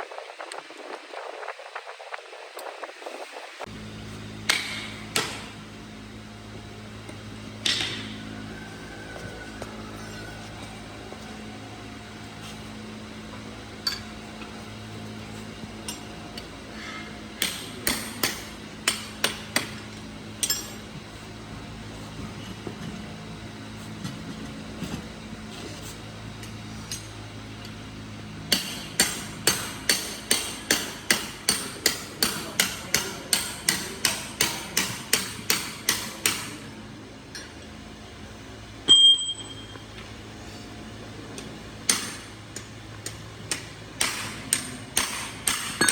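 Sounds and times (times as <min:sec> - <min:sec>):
low steady hum: 0:00.0 - 0:45.9
hammer striking metal: 0:04.5 - 0:05.6, 0:17.4 - 0:19.8, 0:28.5 - 0:36.6, 0:43.0 - 0:45.9
short metallic ring: 0:38.9 - 0:39.9.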